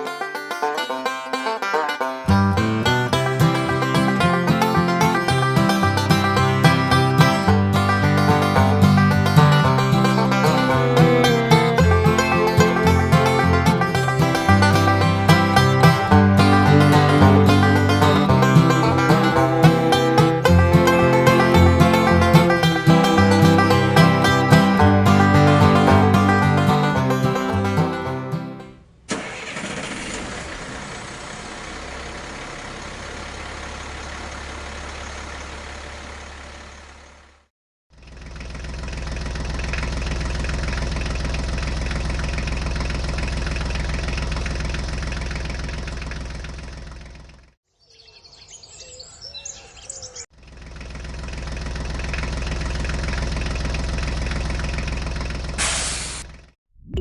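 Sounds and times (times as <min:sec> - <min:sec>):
banjo music: 0:00.0 - 0:28.8
tractor engine running: 0:01.6 - 0:47.6, 0:50.3 - 0:56.6.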